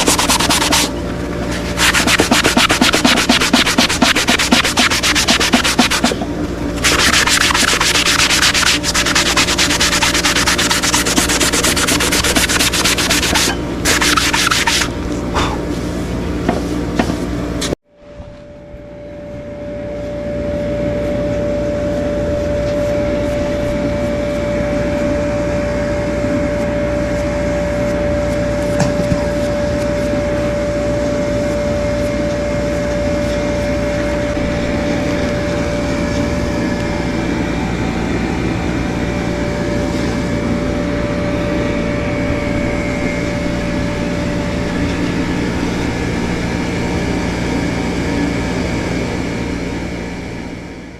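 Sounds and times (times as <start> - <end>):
abrasive sanding on hoof: 0.0 - 15.0
steady droning hum: 0.0 - 50.9.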